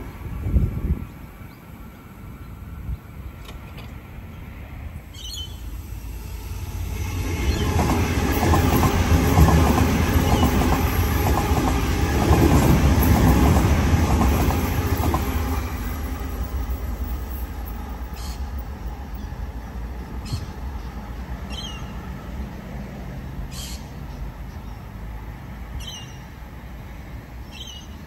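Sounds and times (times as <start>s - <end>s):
electric train running past: 0.0s - 27.7s.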